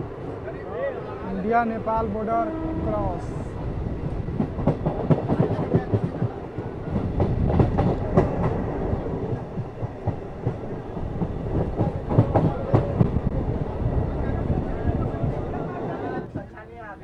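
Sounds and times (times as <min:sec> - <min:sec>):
train rumble: 0:00.0 - 0:17.0
train wheels clattering over rails: 0:03.6 - 0:13.4.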